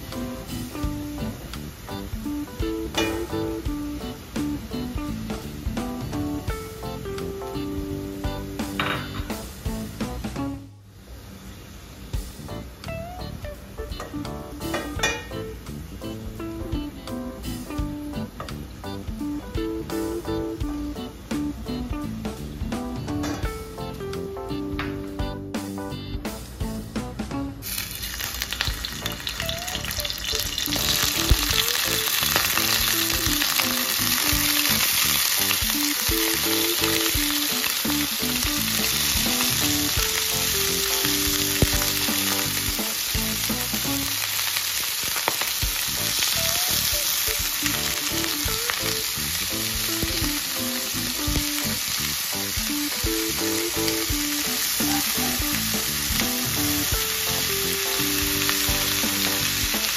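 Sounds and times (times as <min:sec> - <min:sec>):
prawns sizzling in hot oil: 0:00.0 - 0:10.2, 0:27.6 - 0:59.9
quiet background music: 0:00.0 - 0:10.8, 0:12.2 - 0:27.8, 0:28.7 - 0:44.3, 0:45.8 - 0:59.9.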